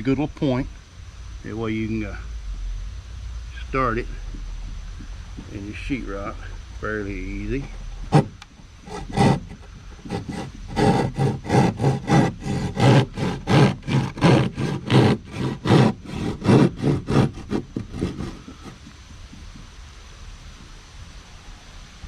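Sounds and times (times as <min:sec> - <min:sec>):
hand saw cutting drywall: 0:08.1 - 0:18.9.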